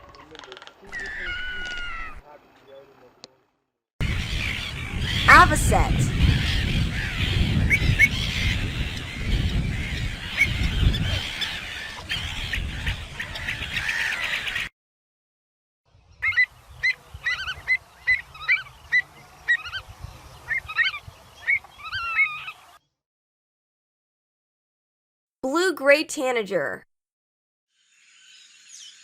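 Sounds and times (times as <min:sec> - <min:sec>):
flock of birds calling: 0:00.0 - 0:02.5, 0:04.0 - 0:14.7, 0:16.2 - 0:22.8
sharp clear bird calls: 0:00.2 - 0:02.9, 0:16.2 - 0:22.8.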